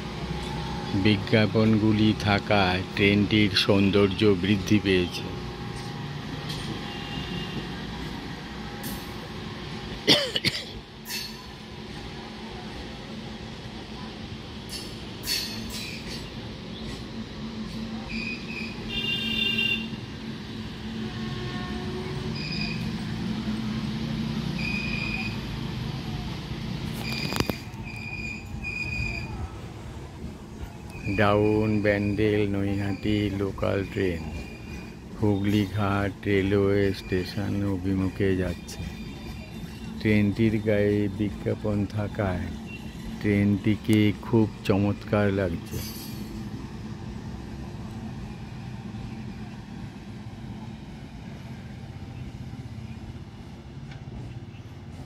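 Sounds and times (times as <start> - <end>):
electric train rumbling past: 0.0 - 55.0
high-pitched wheel squeals: 6.5 - 7.8, 14.7 - 17.0, 18.0 - 20.0, 21.0 - 23.2, 24.4 - 25.6, 26.9 - 29.8, 30.6 - 43.7, 45.6 - 46.5.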